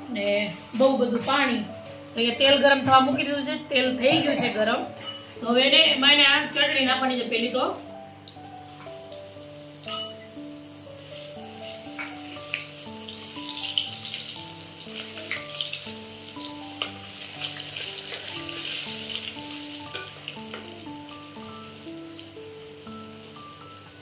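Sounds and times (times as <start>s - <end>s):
slow background melody: 0.0s - 24.0s
food sizzling in hot oil: 8.2s - 24.0s.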